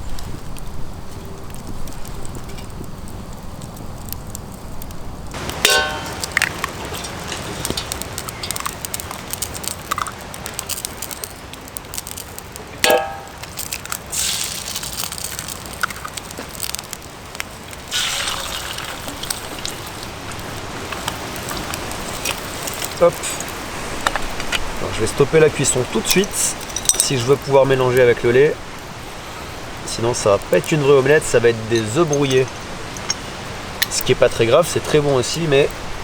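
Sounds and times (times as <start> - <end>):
wood fire crackling: 0.0 - 36.0
eggs sizzling in oil: 2.4 - 36.0
metallic clinks: 26.1 - 27.2, 31.7 - 34.0.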